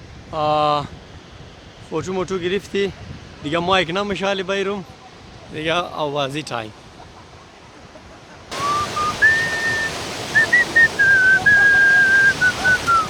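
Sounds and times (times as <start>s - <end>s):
wind: 0.0s - 13.0s
surf: 6.9s - 13.0s
person whistling a slow tune: 8.6s - 13.0s.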